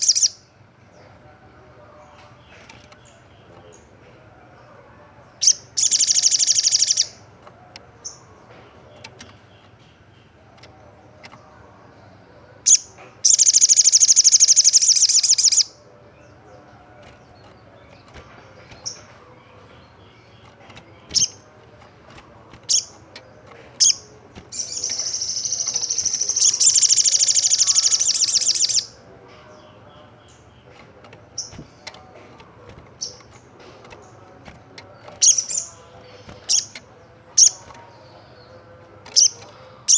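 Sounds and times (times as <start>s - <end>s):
bird high-pitched trills: 0.0s - 0.4s, 5.4s - 7.2s, 12.6s - 15.8s, 23.8s - 29.0s
bird chip notes: 12.6s - 39.9s.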